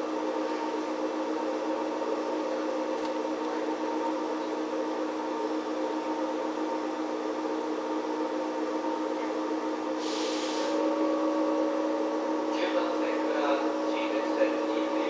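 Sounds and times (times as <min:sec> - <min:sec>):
train interior hum: 0:00.0 - 0:15.0
short hiss: 0:10.0 - 0:10.8.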